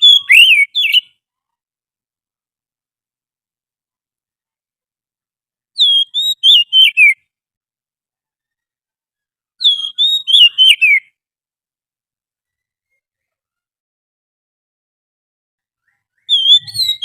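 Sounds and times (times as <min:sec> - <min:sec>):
bird whistled song: 0:00.0 - 0:01.2, 0:05.8 - 0:07.3, 0:09.6 - 0:11.2, 0:15.8 - 0:17.0.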